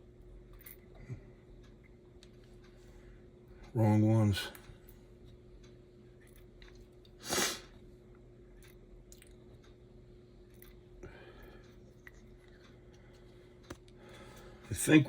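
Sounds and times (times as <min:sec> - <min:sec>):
faint steady hum: 0:00.0 - 0:15.0
short breathy hiss: 0:07.2 - 0:07.7
small clicks and taps of parts: 0:11.6 - 0:14.0.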